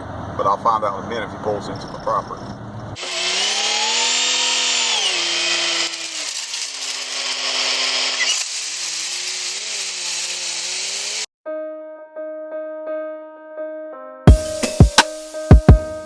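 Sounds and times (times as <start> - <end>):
chainsaw cutting wood: 3.0 - 11.3.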